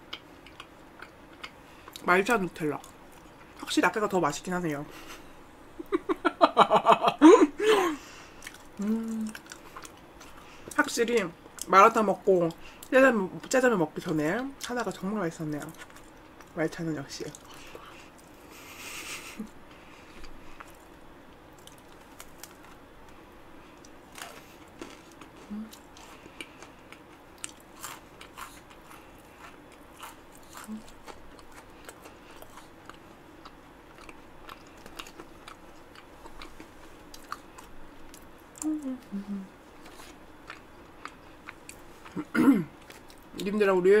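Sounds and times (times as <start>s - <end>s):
close chewing with crisp clicks: 0.0s - 3.7s, 8.4s - 16.6s, 17.2s - 18.4s, 20.0s - 39.1s, 39.8s - 43.6s
person humming: 8.8s - 9.4s, 25.4s - 25.8s, 38.6s - 39.6s
mouth sounds: 38.6s - 39.6s.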